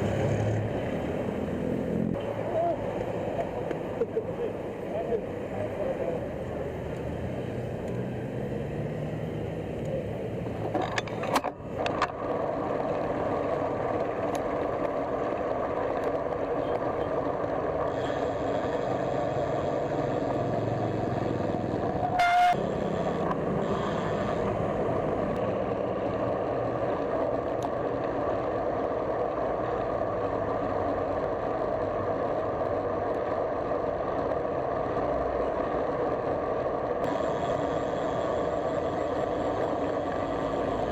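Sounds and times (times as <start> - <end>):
road traffic noise: 0.0 - 40.9
car horn toot: 22.1 - 22.6.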